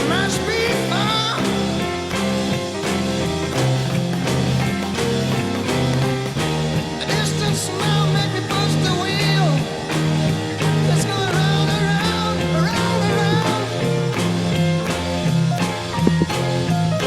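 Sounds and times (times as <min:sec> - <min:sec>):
person singing: 0:00.0 - 0:02.0, 0:06.8 - 0:14.6
blues-rock song: 0:00.0 - 0:17.0
drums: 0:00.0 - 0:17.0
electric guitar: 0:00.0 - 0:17.0
pulsing bass line: 0:00.0 - 0:17.0.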